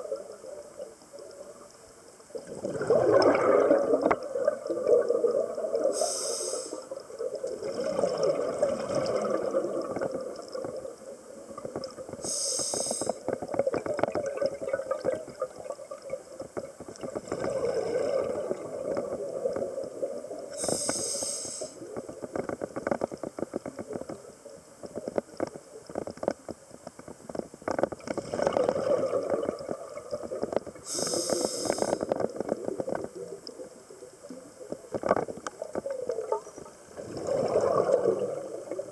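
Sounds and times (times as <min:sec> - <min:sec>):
exhaled air bubbling: 0:00.0 - 0:24.2, 0:27.3 - 0:38.9
regulator inhalation hiss: 0:05.8 - 0:07.0, 0:12.2 - 0:13.3, 0:20.5 - 0:21.8, 0:30.8 - 0:32.1.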